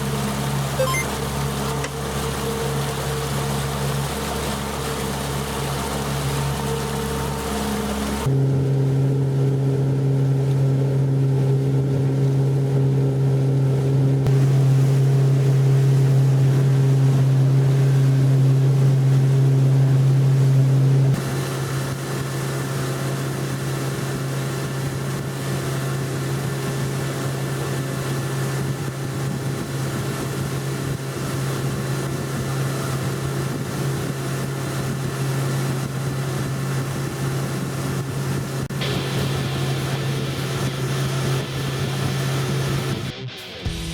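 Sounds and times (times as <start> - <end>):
outboard motor droning: 0.0 - 43.1
wind and water noise: 0.0 - 43.1.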